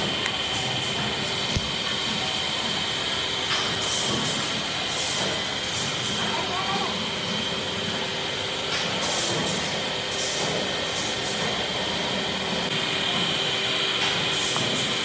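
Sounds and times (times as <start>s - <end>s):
factory machinery humming: 0.0s - 15.0s
high machine whine: 0.0s - 15.0s.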